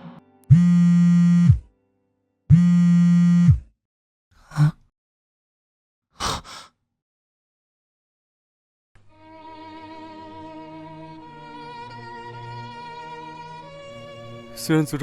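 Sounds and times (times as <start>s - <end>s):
mobile phone vibrating: 0.5s - 1.7s, 2.5s - 3.7s.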